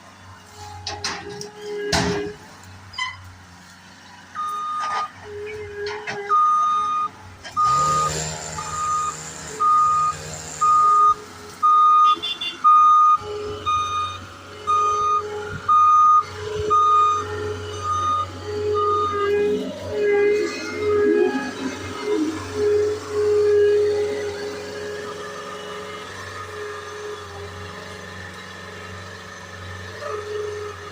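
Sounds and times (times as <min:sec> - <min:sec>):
reversing alarm beeping: 0:04.4 - 0:05.1, 0:06.0 - 0:24.4.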